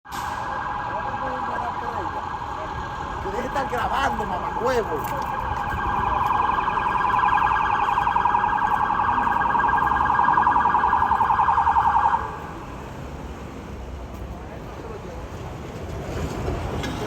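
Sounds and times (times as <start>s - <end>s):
electronic siren warbling: 3.3s - 12.4s.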